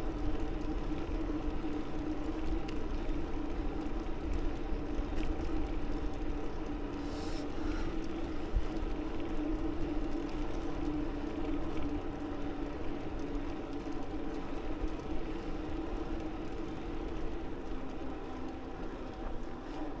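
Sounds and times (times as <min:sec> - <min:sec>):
steady droning hum: 0:06.8 - 0:08.7.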